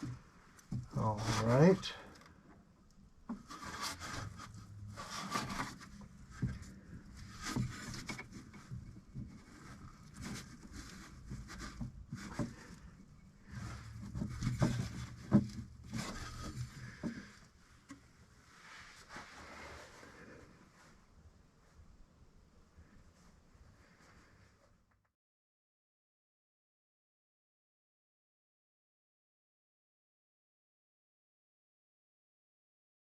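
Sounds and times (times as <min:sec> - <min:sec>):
rubbing and scraping: 0:00.7 - 0:02.2, 0:03.3 - 0:21.0.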